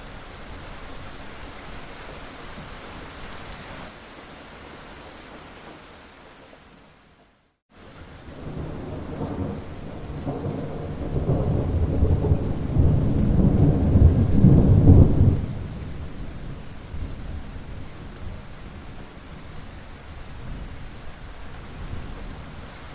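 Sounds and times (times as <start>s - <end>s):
rain falling: 0.0s - 22.9s
rolling thunder: 8.2s - 18.4s.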